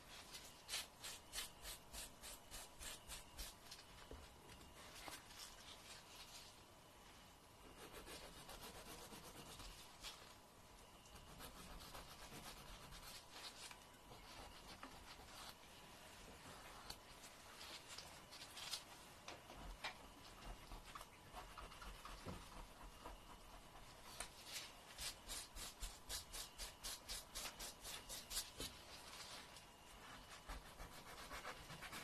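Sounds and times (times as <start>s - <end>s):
nail file scratching: 7.8s - 9.7s, 11.2s - 13.3s.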